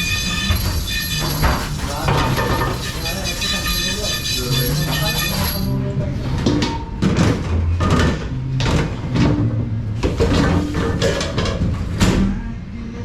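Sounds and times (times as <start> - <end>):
dishes and kitchenware clattering: 0.0 - 5.8, 10.0 - 11.9.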